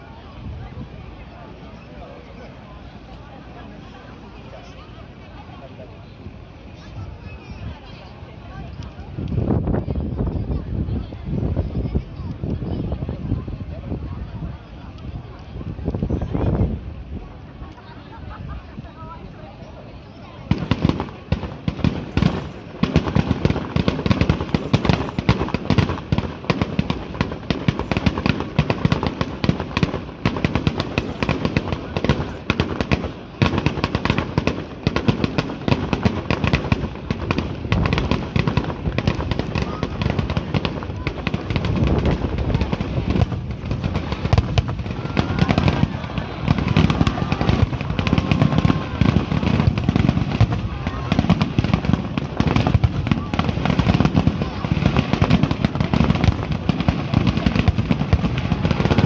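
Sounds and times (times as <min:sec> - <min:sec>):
fireworks bursting and crackling: 0:20.0 - 0:59.0.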